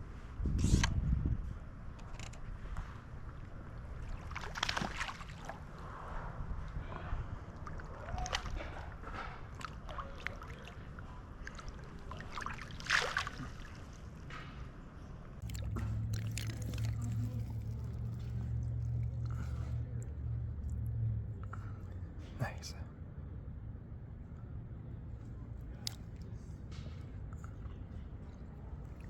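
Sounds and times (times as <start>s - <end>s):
small splashes and knocks: 2.1s - 5.9s, 7.6s - 14.7s, 15.4s - 21.8s, 25.5s - 29.0s
water sloshing and gurgling: 2.1s - 22.3s, 25.2s - 29.0s
low hum: 15.0s - 29.0s
low water rush: 15.4s - 22.0s.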